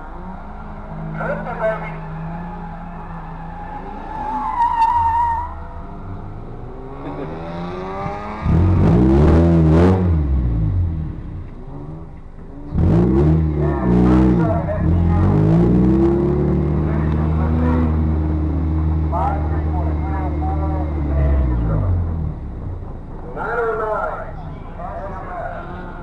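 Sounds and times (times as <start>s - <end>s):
tire squeal: 0.0s - 7.2s
car accelerating past: 0.0s - 23.0s
car engines running: 0.0s - 26.0s.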